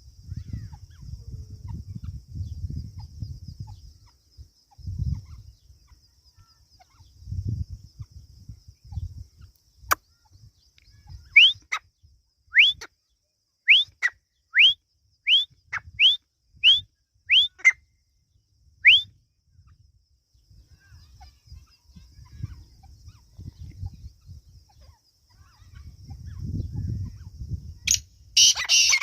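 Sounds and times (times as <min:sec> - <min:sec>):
bird whistled calls: 0:11.2 - 0:11.8, 0:12.5 - 0:12.9, 0:13.7 - 0:17.8, 0:18.8 - 0:19.2, 0:27.9 - 0:29.0.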